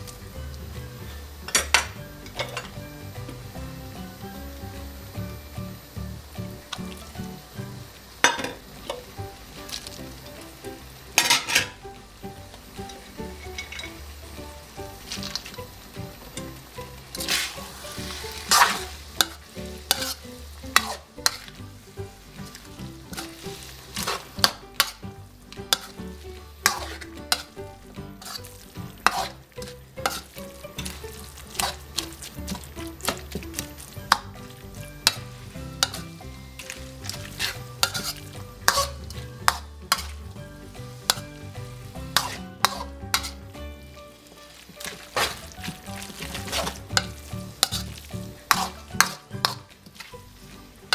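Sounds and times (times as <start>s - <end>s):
food sizzling in oil: 0.0s - 50.9s
metal spatula scraping a wok: 11.1s - 11.8s, 12.8s - 15.7s, 16.3s - 50.9s.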